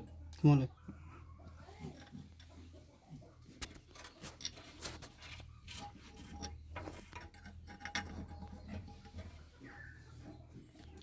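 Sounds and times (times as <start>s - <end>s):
metal tools clinking: 3.9s - 9.4s.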